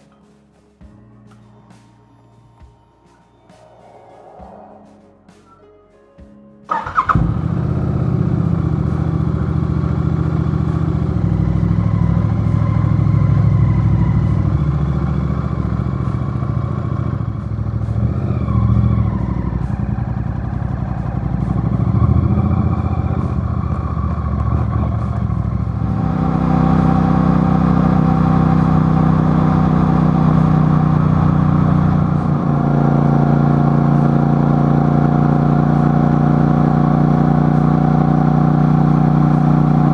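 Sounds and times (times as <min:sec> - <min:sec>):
vehicle engine running loudly: 0:06.7 - 0:39.9.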